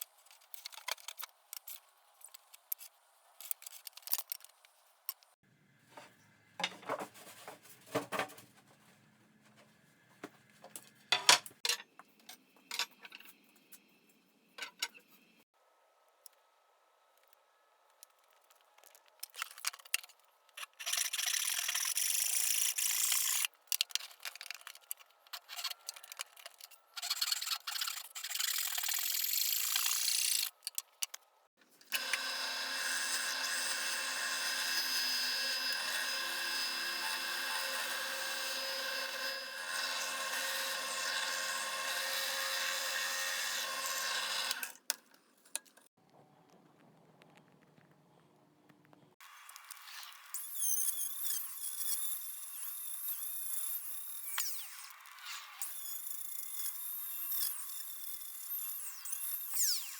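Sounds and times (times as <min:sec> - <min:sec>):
power tool whining: 0:31.9 - 0:44.8.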